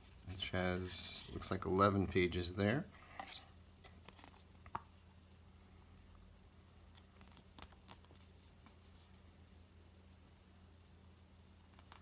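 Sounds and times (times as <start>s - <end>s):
paper and packaging handled: 3.2s - 5.1s.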